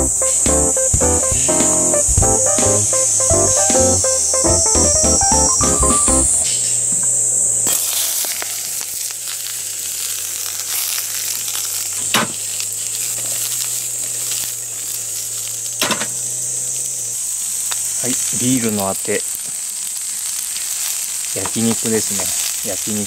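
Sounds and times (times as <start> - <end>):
insects trilling: 1.5 - 7.6, 12.6 - 20.3
onions sizzling in a wok: 3.1 - 23.0.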